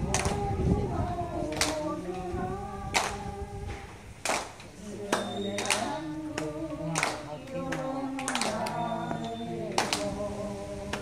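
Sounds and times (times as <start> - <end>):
hand claps: 0.0 - 0.5, 1.5 - 2.0, 2.9 - 10.2
group singing in unison: 0.0 - 11.0.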